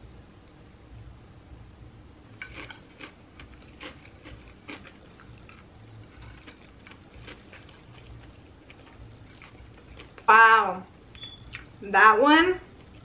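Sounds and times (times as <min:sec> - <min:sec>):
chewing crunchy fried food: 0:02.3 - 0:10.3, 0:12.7 - 0:13.0.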